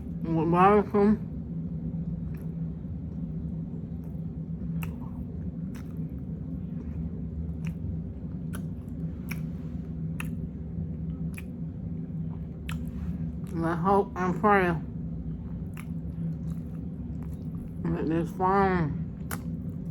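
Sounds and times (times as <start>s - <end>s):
low hum: 0.0s - 19.9s
person chewing with wet smacks: 2.2s - 13.6s, 15.3s - 17.8s, 19.1s - 19.9s.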